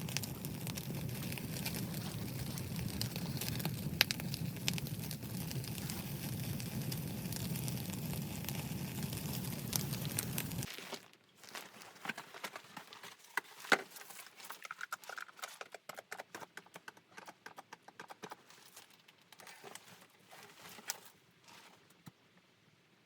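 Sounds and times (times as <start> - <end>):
wood fire crackling: 0.0 - 12.6.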